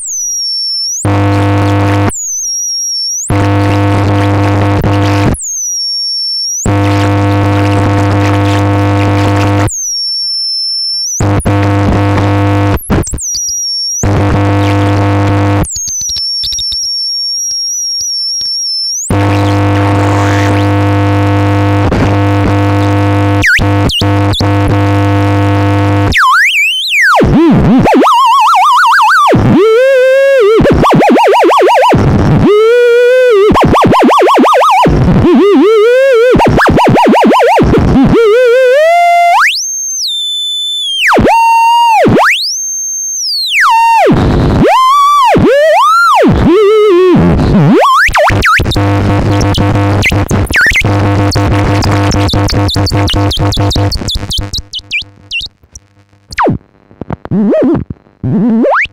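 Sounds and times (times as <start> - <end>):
swooping electronic tone: 0.0 - 42.4, 43.5 - 55.5, 57.3 - 58.9
buzzing electronic drone: 0.1 - 10.4, 11.2 - 13.4, 14.0 - 26.5, 43.5 - 58.9.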